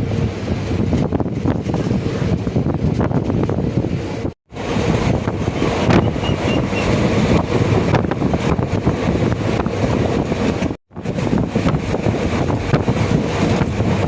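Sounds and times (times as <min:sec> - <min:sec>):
train rumbling: 0:00.0 - 0:14.0
wind buffeting microphone: 0:00.0 - 0:14.0.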